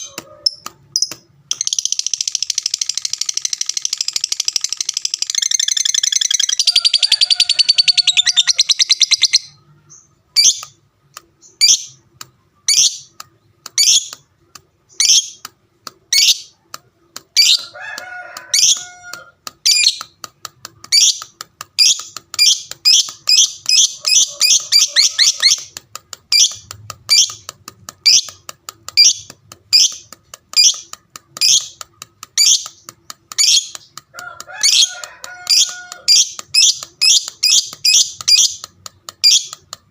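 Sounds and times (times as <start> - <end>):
lovebird chattering trill: 0.0 - 10.7, 20.9 - 28.4, 29.0 - 31.8, 32.4 - 33.8, 34.6 - 39.6
shrill bird chirps: 0.5 - 10.7.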